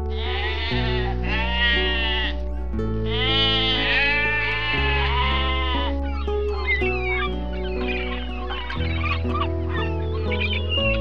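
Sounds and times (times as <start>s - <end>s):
sheep bleating: 0.0s - 2.4s, 3.0s - 6.0s
background music with bass line: 0.0s - 11.0s.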